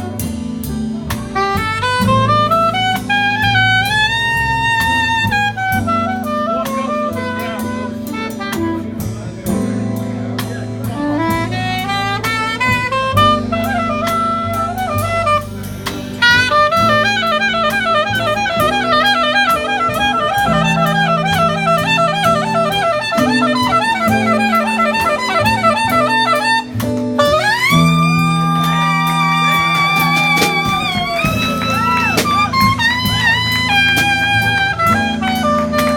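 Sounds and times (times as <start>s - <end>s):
bass line: 0.0s - 35.9s
drums: 0.0s - 35.9s
soprano saxophone runs: 16.2s - 35.9s.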